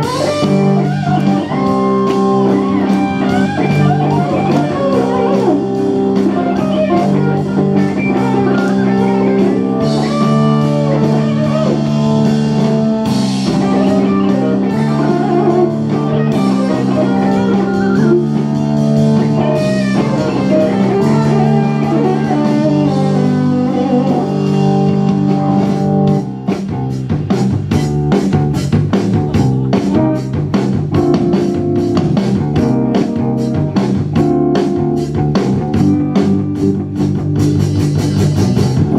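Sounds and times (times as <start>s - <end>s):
fast drum hits: 0.0s - 22.8s
electric guitar bending notes: 0.0s - 38.9s
rock blues band playing: 0.0s - 38.9s.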